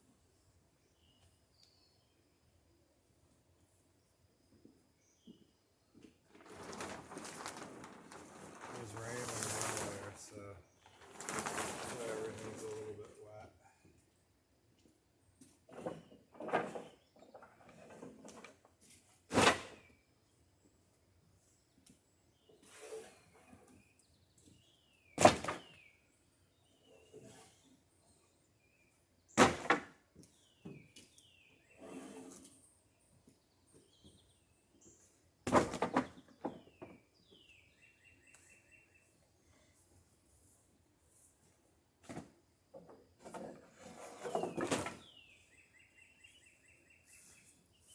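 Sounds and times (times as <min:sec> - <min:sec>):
songbird chirping: 0:00.0 - 0:14.2, 0:30.2 - 0:35.3, 0:36.0 - 0:39.6, 0:42.7 - 0:47.9
wooden boards scraping: 0:06.3 - 0:13.0, 0:43.2 - 0:45.3.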